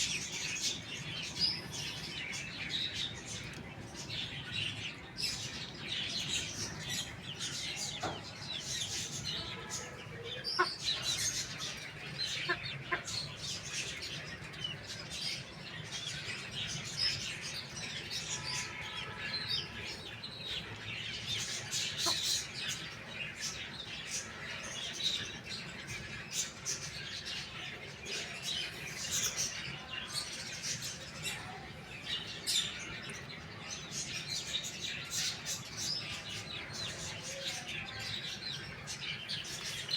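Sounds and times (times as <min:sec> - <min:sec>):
small birds chirping: 0:00.0 - 0:39.9
chickens clucking: 0:06.6 - 0:13.9, 0:21.4 - 0:22.8.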